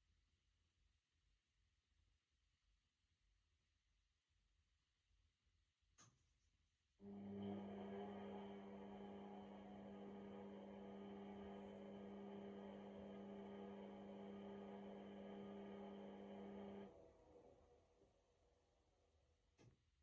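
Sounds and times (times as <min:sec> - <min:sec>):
washing machine humming: 0:07.0 - 0:17.5.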